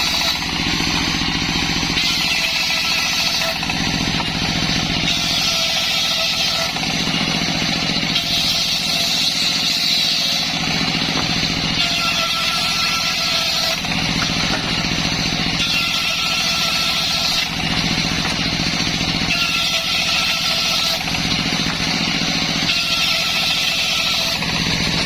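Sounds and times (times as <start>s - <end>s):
circular saw ripping wood: 0.0s - 25.0s.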